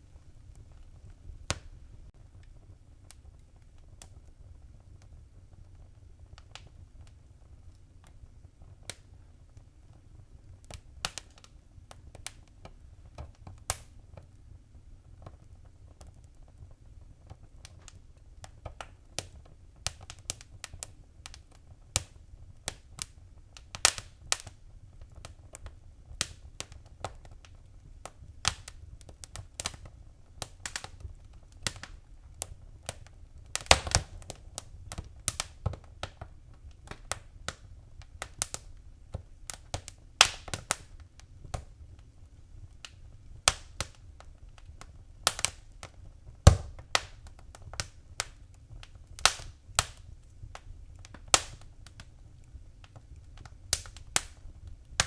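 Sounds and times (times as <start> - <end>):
wood fire crackling and popping: 0.0 - 55.0.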